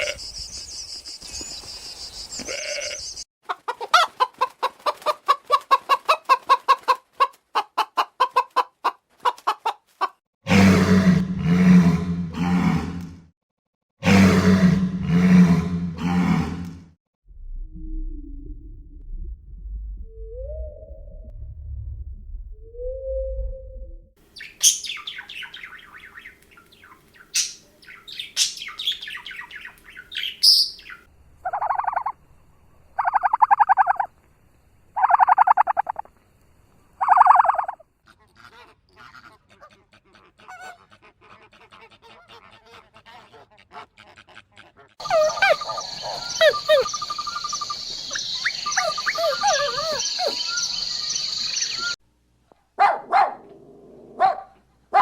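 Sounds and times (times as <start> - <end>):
birds chirping: 0.0 - 3.2, 24.3 - 32.1, 45.0 - 52.0.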